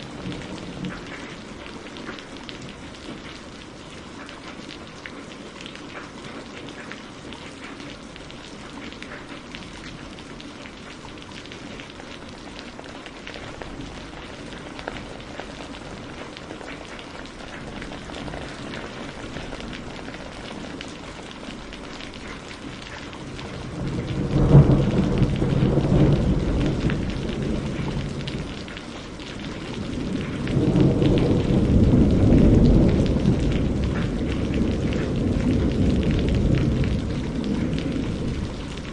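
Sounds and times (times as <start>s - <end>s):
rain falling: 0.0s - 38.9s
thunder rolling: 23.2s - 28.8s, 29.4s - 38.9s.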